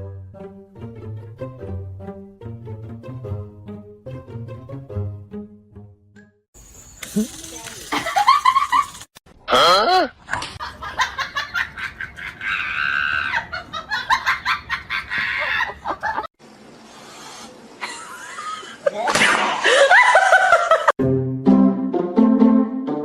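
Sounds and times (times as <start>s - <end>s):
people laughing and shrieking: 12.0s - 16.2s.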